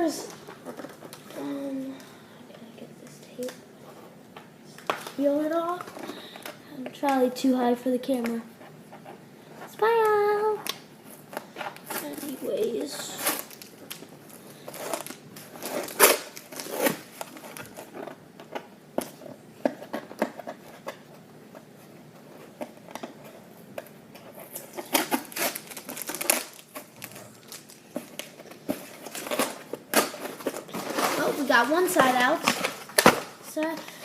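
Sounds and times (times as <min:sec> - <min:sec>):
packaging rustling: 0:11.1 - 0:34.0
packing tape peeled off cardboard: 0:11.9 - 0:13.7, 0:14.6 - 0:18.0, 0:24.2 - 0:31.6.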